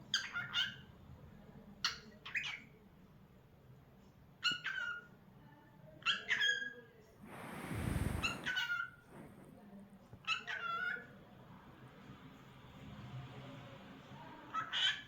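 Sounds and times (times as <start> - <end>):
rush of noise: 7.2 - 9.5.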